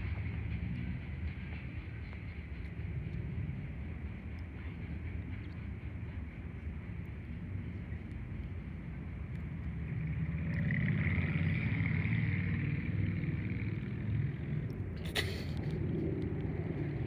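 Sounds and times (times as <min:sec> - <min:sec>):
distant freight train rumble: 0:00.0 - 0:17.0.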